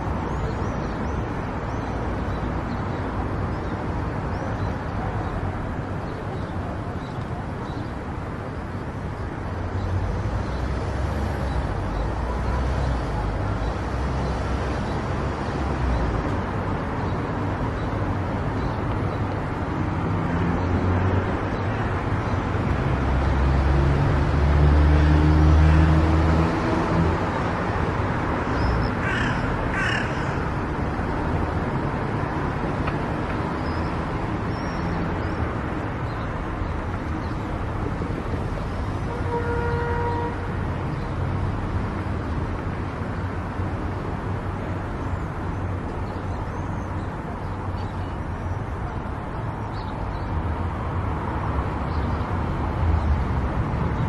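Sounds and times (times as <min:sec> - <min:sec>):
car engine and tyre rumble: 0:00.0 - 0:54.0
harsh caw-like calls: 0:29.0 - 0:30.6.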